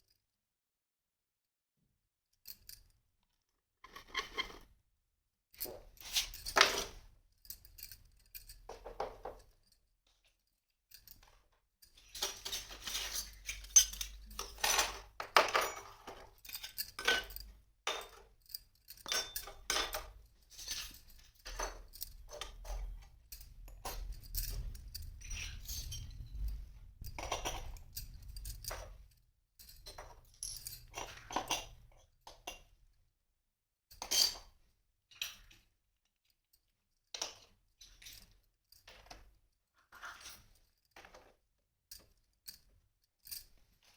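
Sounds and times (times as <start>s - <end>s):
toy dishes clinking and clattering: 3.8s - 4.7s, 5.6s - 9.7s, 10.9s - 32.7s.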